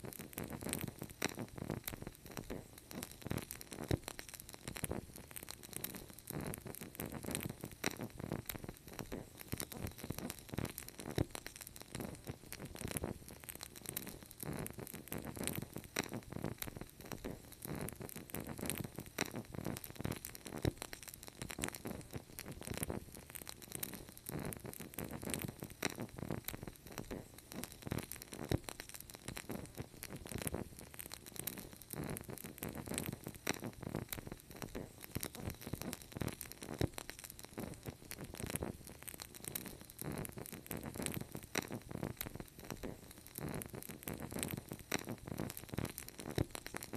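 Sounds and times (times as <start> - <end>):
wood fire crackling: 0.0 - 46.9.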